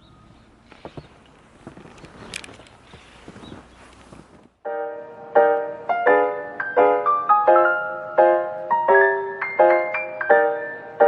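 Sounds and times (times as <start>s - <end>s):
low background hiss: 0.0s - 11.0s
small knocks and rustles: 0.6s - 4.6s.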